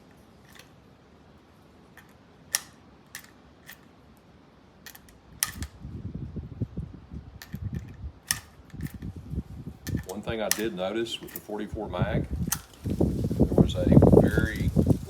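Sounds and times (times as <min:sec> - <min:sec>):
cartridges clicking into rifle: 0:00.0 - 0:00.8, 0:01.9 - 0:05.8, 0:07.4 - 0:09.1, 0:09.8 - 0:11.6, 0:12.5 - 0:13.0
wind buffeting microphone: 0:05.1 - 0:15.0.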